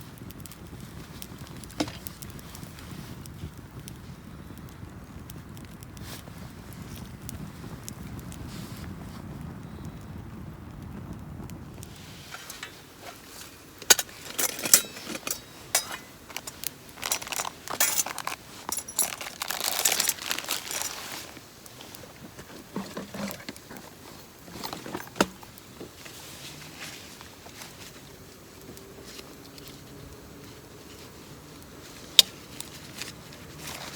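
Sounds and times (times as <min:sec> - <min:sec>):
rustling: 0:05.5 - 0:09.9, 0:11.6 - 0:33.9
camping gear clicking and clinking: 0:11.8 - 0:26.2, 0:31.9 - 0:33.9.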